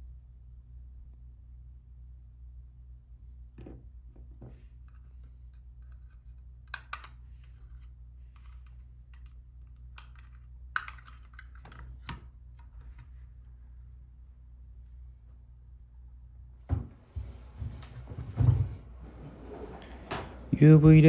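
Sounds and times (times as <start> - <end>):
small parts clicking and tapping: 8.4 - 12.2
steady low hum: 13.5 - 21.0
soft rubbing: 16.8 - 21.0.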